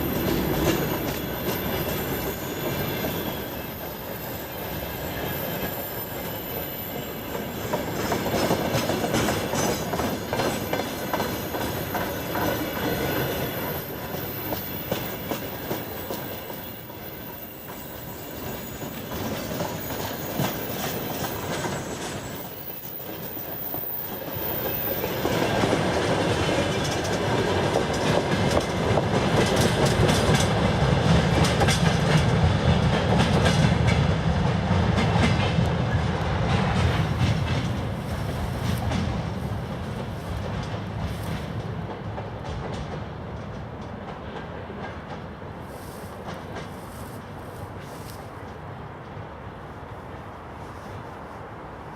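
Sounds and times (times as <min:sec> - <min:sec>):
high wheel squeal: 0:00.0 - 0:08.0
train wheels clattering over rail joints: 0:00.0 - 0:47.0.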